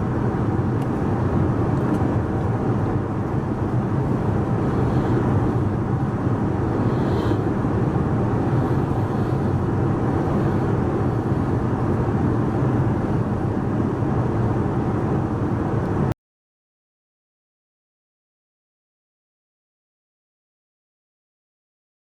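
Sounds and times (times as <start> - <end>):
airplane cabin engine and airflow noise: 0.0 - 16.2.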